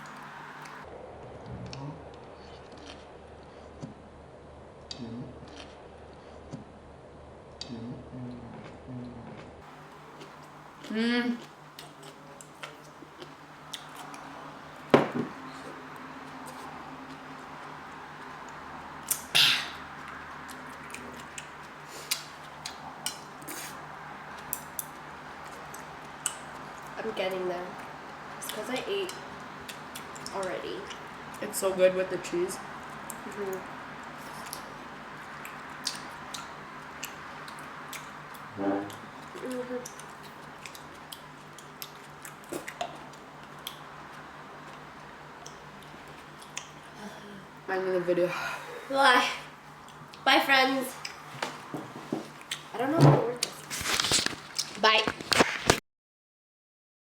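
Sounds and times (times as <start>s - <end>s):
low room hum: 0.0s - 55.8s
eating clicks and mouth noises: 7.6s - 31.5s, 32.6s - 47.6s, 49.7s - 50.3s, 50.9s - 51.3s, 52.2s - 52.8s.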